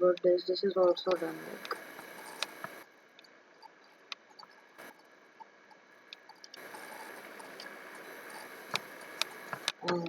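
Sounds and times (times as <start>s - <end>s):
room hiss: 0.3s - 3.2s, 4.6s - 10.0s
computer clicks: 6.1s - 10.0s.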